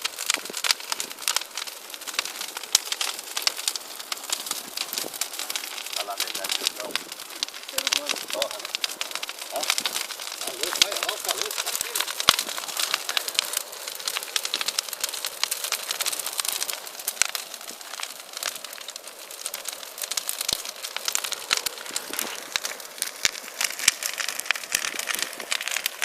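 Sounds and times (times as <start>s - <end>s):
bonfire crackling: 0.0s - 26.0s
fire pops: 0.0s - 26.0s.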